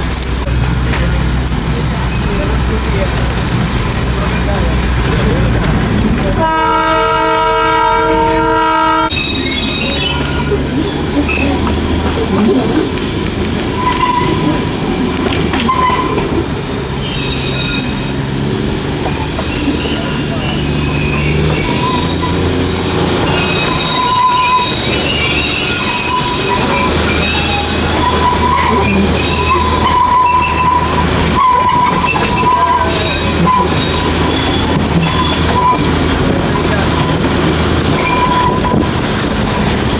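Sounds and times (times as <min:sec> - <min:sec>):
train rumbling: 0:00.0 - 0:39.9
wheels squealing: 0:00.0 - 0:39.9
train horn blast: 0:06.4 - 0:09.3.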